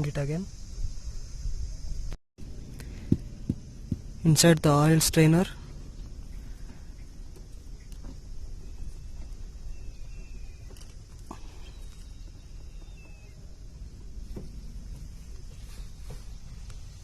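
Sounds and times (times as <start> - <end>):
low outdoor rumble: 0.0 - 17.0
faint high chirps: 8.6 - 13.7.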